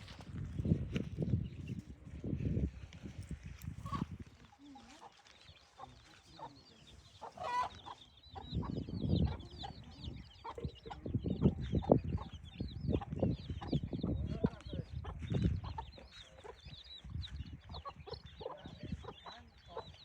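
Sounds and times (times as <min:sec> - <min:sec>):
small birds chirping: 0:00.0 - 0:20.0
hens clucking: 0:03.8 - 0:20.0.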